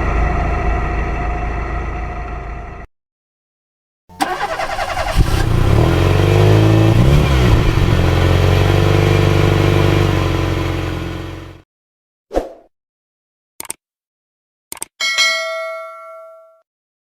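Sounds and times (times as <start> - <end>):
vehicle engine running: 0.0 - 2.9, 4.1 - 11.6.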